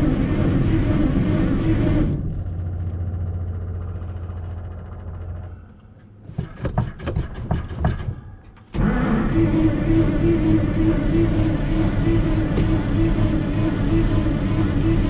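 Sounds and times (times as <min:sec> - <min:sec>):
truck engine running: 0:00.0 - 0:06.8, 0:08.7 - 0:15.0
sharp clicks and knocks: 0:06.3 - 0:08.8.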